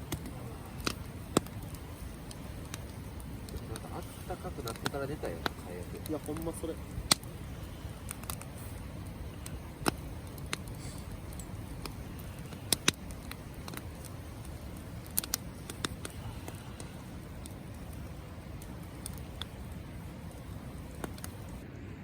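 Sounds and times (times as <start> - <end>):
campfire crackling and popping: 0.0 - 21.6
low steady rumble: 0.0 - 22.0.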